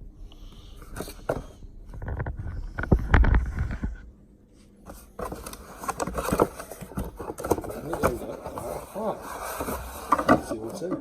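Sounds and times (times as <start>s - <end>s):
cardboard rubbing rumble: 4.8s - 10.7s
cardboard box clicks and scraping: 4.9s - 10.6s.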